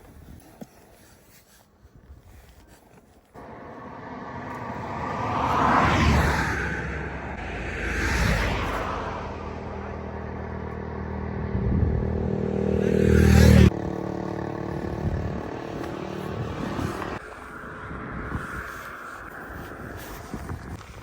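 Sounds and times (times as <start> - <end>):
motorcycle engine running: 9.6 - 17.2.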